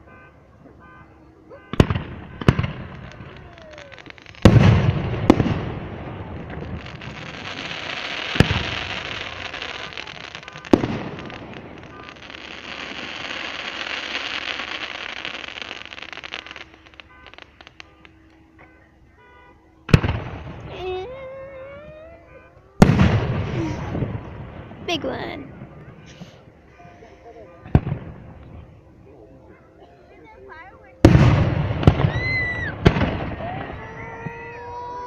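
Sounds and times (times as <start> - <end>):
fireworks booming: 0.0 - 18.2, 19.9 - 26.7, 27.6 - 28.8, 31.0 - 35.0
fireworks crackling hiss: 2.5 - 18.3, 24.8 - 28.4.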